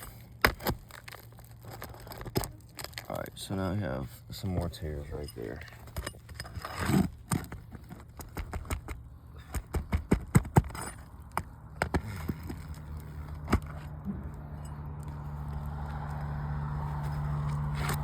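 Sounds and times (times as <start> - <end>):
clicks and scrapes on roof shingle: 0.0 - 3.4, 5.6 - 14.0
shingle tearing: 0.0 - 3.4, 5.6 - 14.0, 15.0 - 18.0
low engine hum: 7.1 - 18.0.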